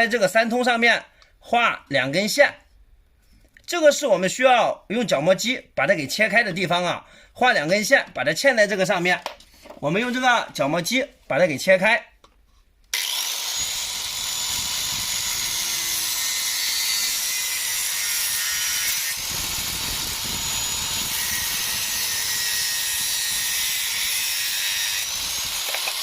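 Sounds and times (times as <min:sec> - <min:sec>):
angle grinder cutting plastic pipe: 0:12.9 - 0:26.0.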